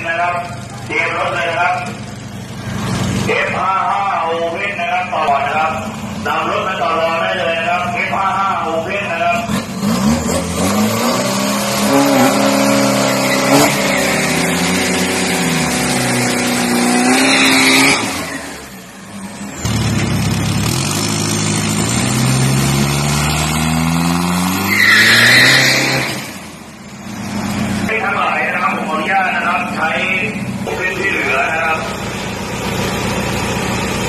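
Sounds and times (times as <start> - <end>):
diesel engines revving: 0.0 - 34.0
tyres squealing: 11.9 - 14.6, 24.5 - 26.3.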